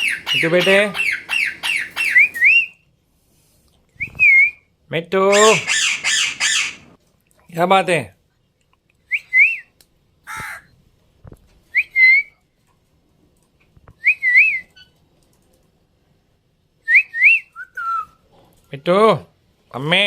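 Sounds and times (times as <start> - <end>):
harsh squawk: 0.0 - 2.6, 5.3 - 7.0.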